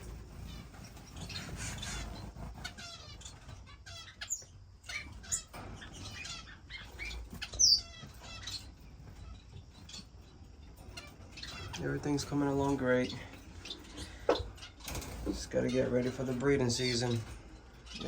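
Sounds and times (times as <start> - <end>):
wings fluttering: 0.0 - 10.1
finches chirping: 0.0 - 18.0.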